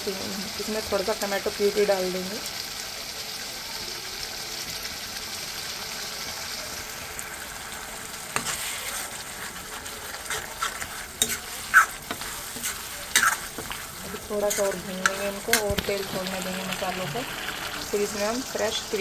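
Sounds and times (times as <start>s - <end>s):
masala sizzling in oil: 0.0s - 19.0s
steel spoon scraping pan: 8.3s - 16.6s.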